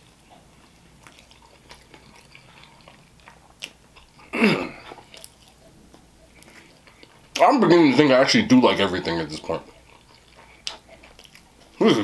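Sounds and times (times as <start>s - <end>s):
wet chewing: 0.0s - 12.0s.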